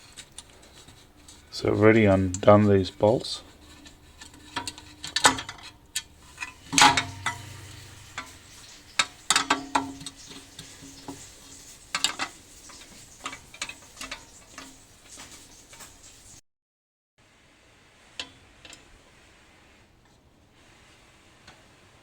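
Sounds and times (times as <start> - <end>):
metal parts clinking and clanking: 3.6 - 10.1.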